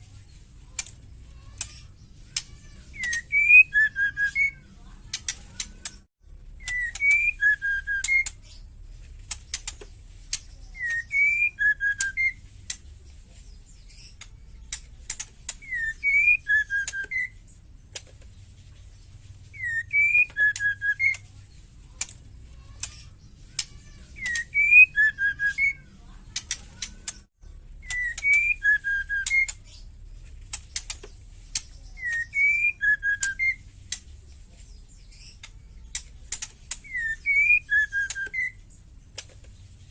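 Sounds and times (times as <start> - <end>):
sharp dry bird clicking: 0.6 - 13.0, 13.9 - 18.4, 19.5 - 21.3, 21.9 - 34.4, 35.1 - 39.6
bird whistled call: 3.0 - 4.6, 6.6 - 8.4, 10.7 - 12.4, 15.6 - 17.4, 19.5 - 21.2, 24.2 - 25.8, 27.8 - 29.6, 32.0 - 33.6, 36.8 - 38.6.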